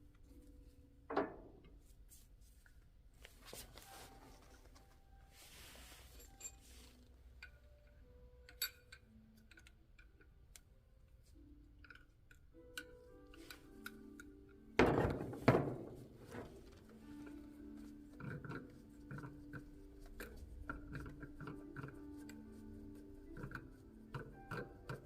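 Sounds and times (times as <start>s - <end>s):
metal parts clicking and clinking: 6.0s - 10.6s, 11.8s - 17.4s.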